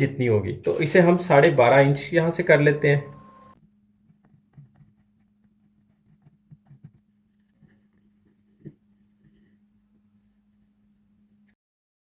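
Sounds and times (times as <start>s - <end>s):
marker scratching on plastic pipe: 0.7s - 1.8s, 4.0s - 10.7s
low steady hum: 0.7s - 3.6s.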